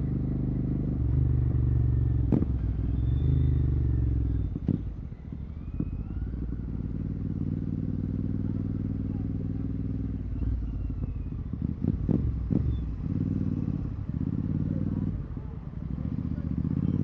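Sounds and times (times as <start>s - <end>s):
motorcycle engine: 0.0s - 17.0s.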